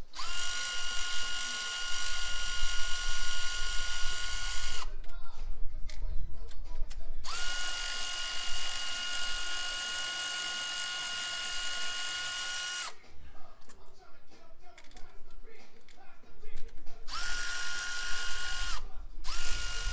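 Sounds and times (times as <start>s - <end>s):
power tool motor whining: 0.0s - 5.0s, 7.2s - 13.0s, 17.1s - 19.9s
ratchet clicking: 0.0s - 5.2s, 5.9s - 13.0s, 14.8s - 15.2s, 15.8s - 19.9s.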